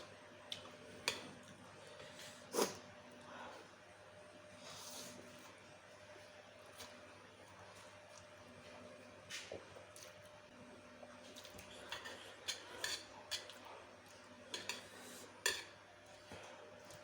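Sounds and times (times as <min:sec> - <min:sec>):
utensil clinking against a bowl: 0:14.5 - 0:15.8.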